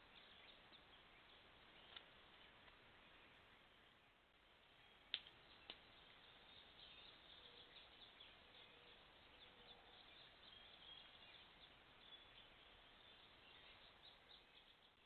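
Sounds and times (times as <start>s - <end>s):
faint high bird chirps: 4.7s - 15.0s.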